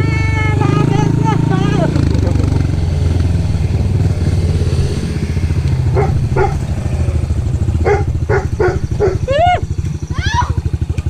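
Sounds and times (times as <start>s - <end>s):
small vehicle engine running: 0.0s - 11.0s
dog barking: 5.9s - 6.7s, 7.8s - 9.6s.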